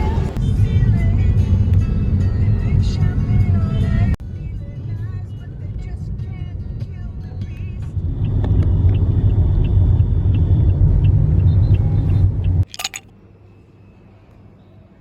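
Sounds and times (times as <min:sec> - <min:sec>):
vehicle rumble from on board: 0:00.0 - 0:12.6
sharp clatter: 0:12.7 - 0:13.1.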